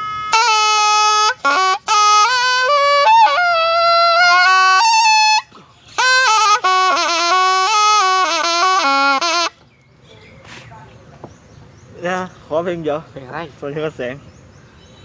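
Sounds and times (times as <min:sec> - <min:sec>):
reed oboe solo melody: 0:00.0 - 0:09.6.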